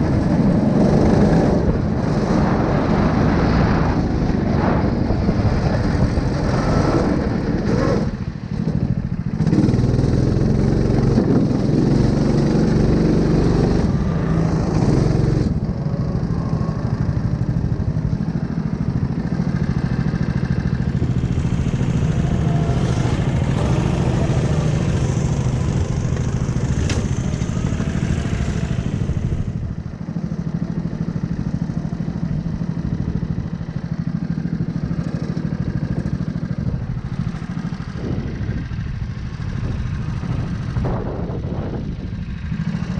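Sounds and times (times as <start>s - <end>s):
small engine running: 0.0s - 42.9s.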